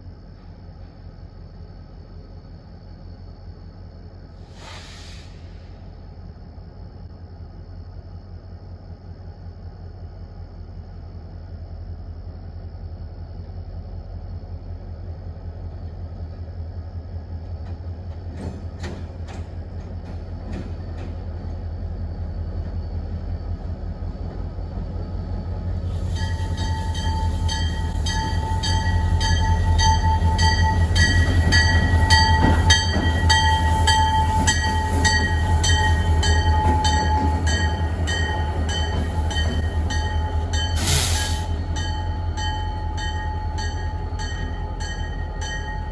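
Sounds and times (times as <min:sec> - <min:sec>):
locomotive engine rumbling: 0:00.0 - 0:45.9
locomotive bell ringing: 0:26.0 - 0:45.9.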